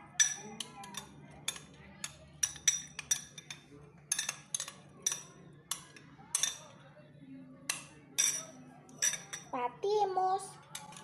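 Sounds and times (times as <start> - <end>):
spoon clinking against container: 0.1 - 6.8, 7.7 - 9.5, 10.7 - 11.0.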